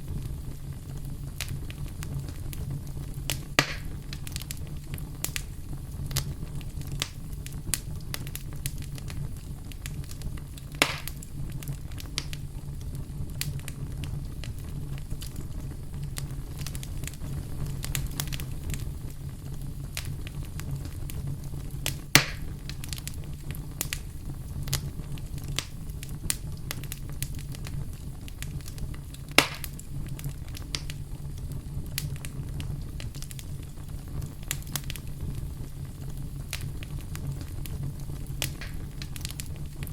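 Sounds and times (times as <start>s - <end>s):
campfire crackling: 0.0s - 39.9s
loud wood pops: 3.6s - 4.0s, 10.8s - 11.2s, 22.2s - 22.5s, 29.4s - 29.8s, 38.5s - 39.4s.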